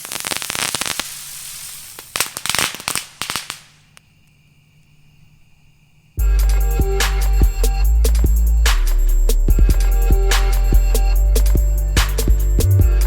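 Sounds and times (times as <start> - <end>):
fireworks crackling and popping: 0.0 - 4.1
loud music: 6.2 - 13.0.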